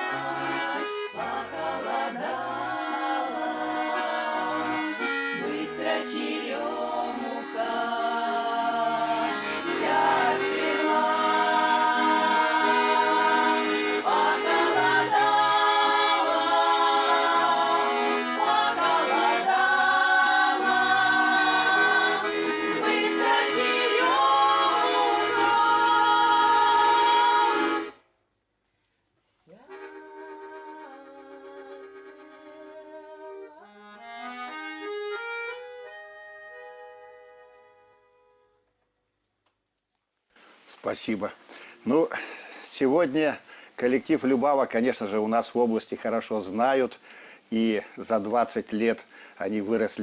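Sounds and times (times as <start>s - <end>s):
women singing together: 0.0s - 27.9s, 29.5s - 33.5s
folk song on accordion: 0.0s - 28.1s, 29.4s - 38.8s, 41.0s - 50.0s.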